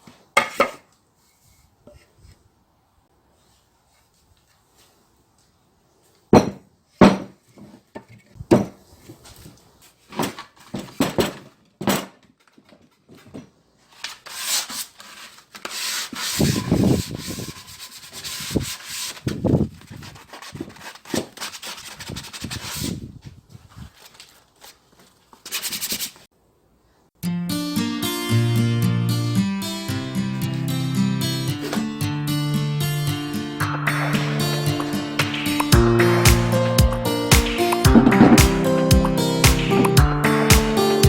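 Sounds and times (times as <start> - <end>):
wood rubbing: 15.7 - 19.4.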